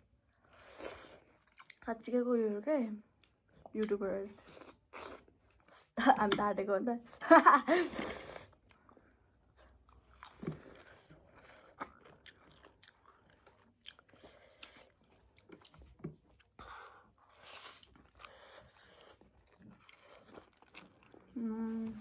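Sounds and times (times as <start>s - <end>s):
person chewing noodles: 0.2s - 1.8s, 4.4s - 6.0s, 7.9s - 21.4s.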